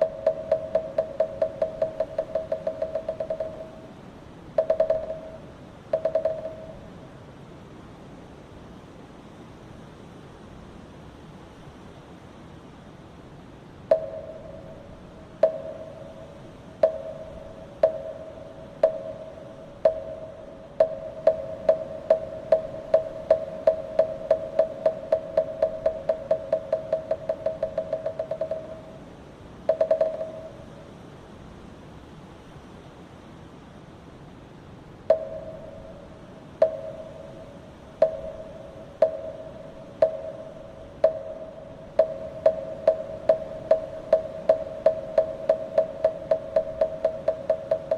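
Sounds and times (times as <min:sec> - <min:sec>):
wooden fish struck with mallet: 0:00.0 - 0:03.8, 0:04.6 - 0:06.8, 0:15.4 - 0:28.9, 0:29.7 - 0:30.6, 0:38.0 - 0:47.9
wind hiss: 0:00.0 - 0:47.9.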